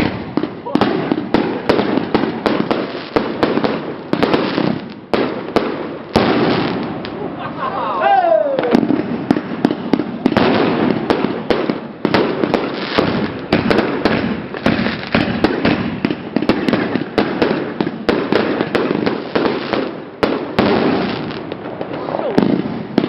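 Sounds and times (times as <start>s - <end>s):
firework crackling and popping: 0.0s - 7.3s, 8.3s - 23.0s.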